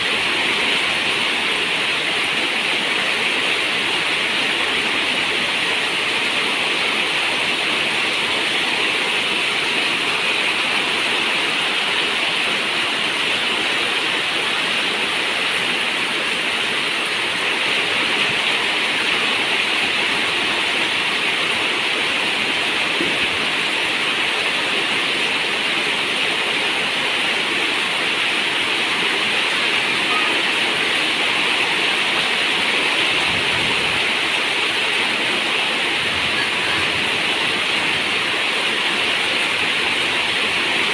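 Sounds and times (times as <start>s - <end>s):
rain on a metal roof: 0.0s - 40.9s.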